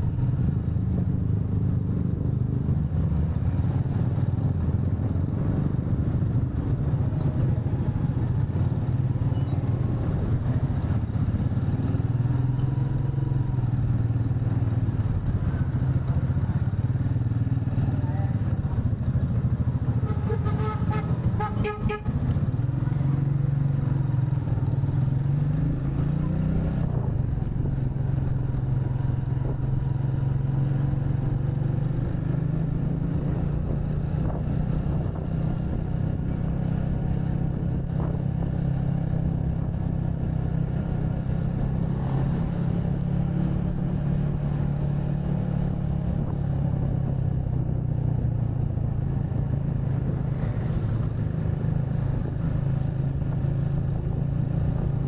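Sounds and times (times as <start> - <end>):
motorcycle engine running: 0.0 - 55.0
road traffic: 0.0 - 55.0
vehicle horn beeps: 20.0 - 22.2.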